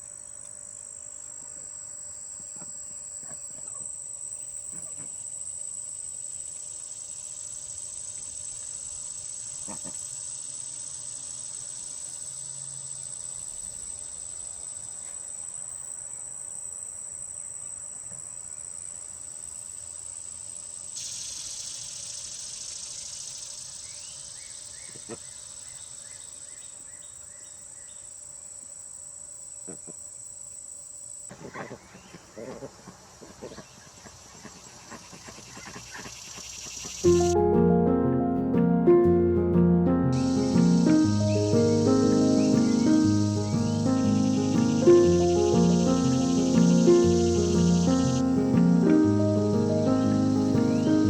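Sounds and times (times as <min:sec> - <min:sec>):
crickets trilling: 0:00.0 - 0:37.1, 0:40.1 - 0:51.0
broad insect buzzing: 0:40.1 - 0:51.0.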